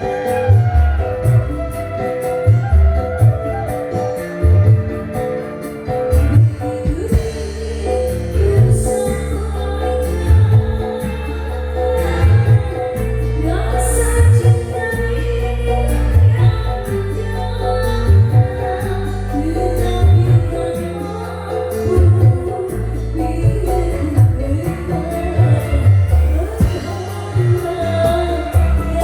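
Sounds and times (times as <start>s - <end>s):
singing over heavy bass beat: 6.5s - 29.0s.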